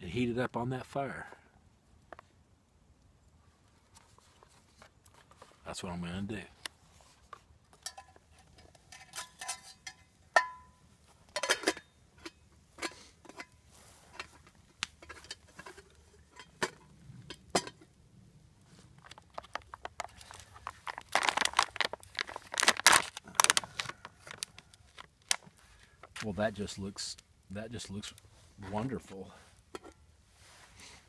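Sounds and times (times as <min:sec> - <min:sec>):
metal cup clinking: 0:07.8 - 0:10.8, 0:11.4 - 0:13.5
plastic packaging crinkling: 0:19.0 - 0:26.3.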